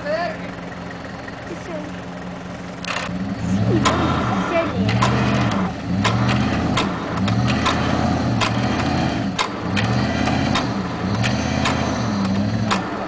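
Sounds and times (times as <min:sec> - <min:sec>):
vehicle engine revving: 0:00.0 - 0:13.0
sharp clacks and knocks: 0:04.8 - 0:13.0.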